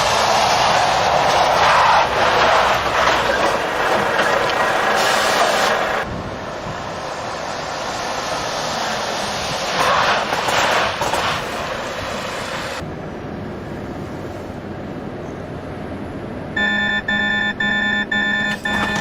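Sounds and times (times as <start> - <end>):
air brakes hissing: 3.3 - 6.0
rapid electronic beeping: 16.6 - 19.0.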